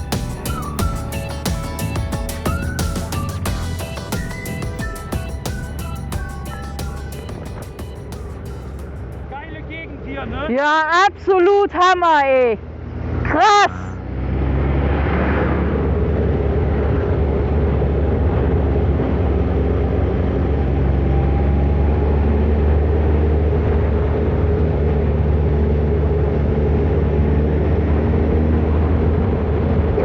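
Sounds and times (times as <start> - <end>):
motorcycle engine running steadily: 0.0 - 9.3.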